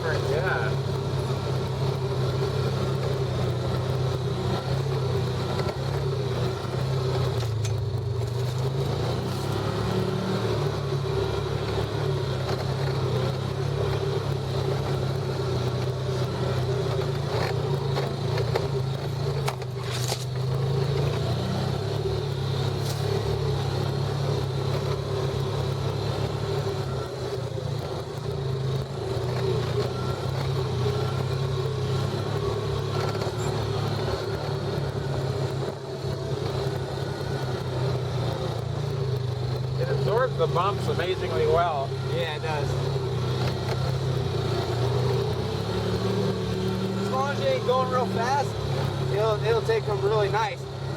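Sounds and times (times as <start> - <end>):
off-road vehicle engine running: 0.0 - 50.9.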